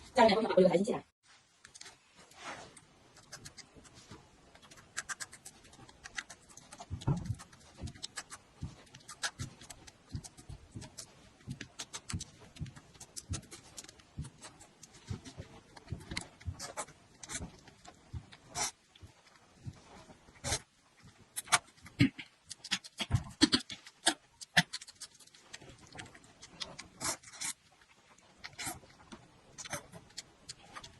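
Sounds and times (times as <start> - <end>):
person chewing and smacking: 2.8 - 30.9
wet mouth clicks: 21.4 - 25.5.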